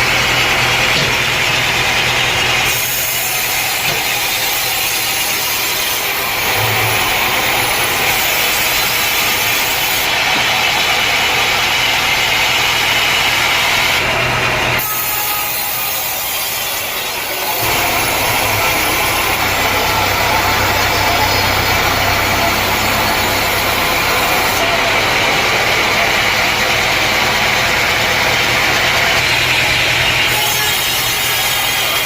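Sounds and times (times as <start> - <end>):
saw hissing: 0.0 - 10.2, 14.8 - 25.0.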